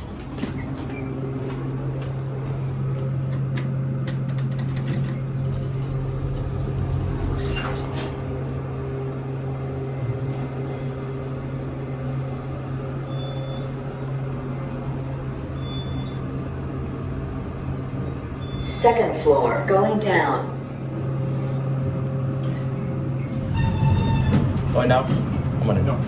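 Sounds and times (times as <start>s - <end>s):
elevator clicks: 0.0s - 8.1s
elevator drive humming: 0.0s - 26.0s.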